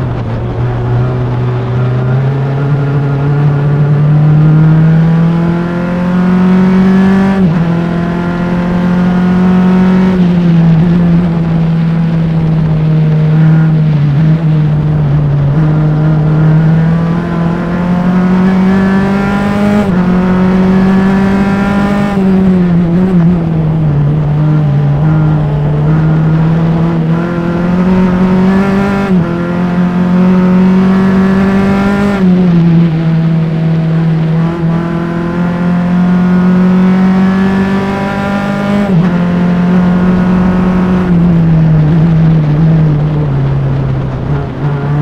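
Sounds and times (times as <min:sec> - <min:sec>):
race car engine revving: 0:00.0 - 0:45.0
tire noise: 0:00.0 - 0:45.0.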